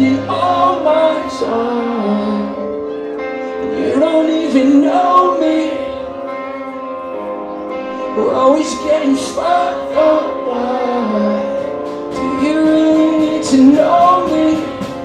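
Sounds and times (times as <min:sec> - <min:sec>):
distorted electric guitars: 0:00.0 - 0:15.0
person singing: 0:00.0 - 0:15.0
drums: 0:08.0 - 0:15.0.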